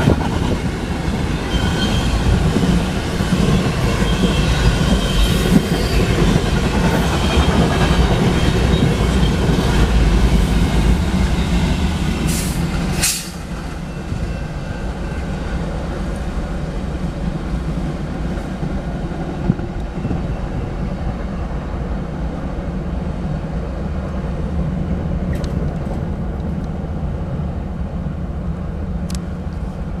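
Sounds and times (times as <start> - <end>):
freight train wheels rolling: 0.0 - 21.6
train wheels squealing: 1.0 - 9.8, 11.0 - 15.9.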